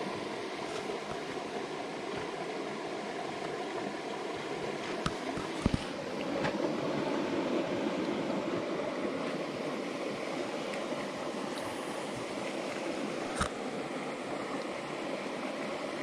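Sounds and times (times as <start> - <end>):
stream water flowing over rocks: 0.0 - 16.0.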